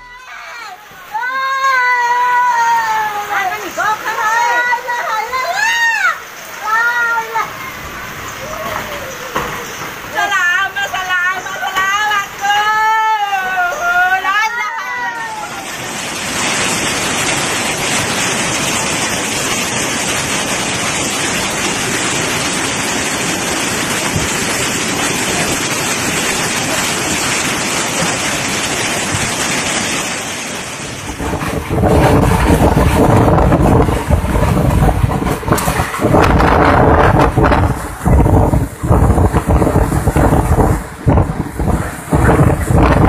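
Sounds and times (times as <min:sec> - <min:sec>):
waves rushing: 0:00.0 - 0:43.0
wind buffeting microphone: 0:30.8 - 0:43.0.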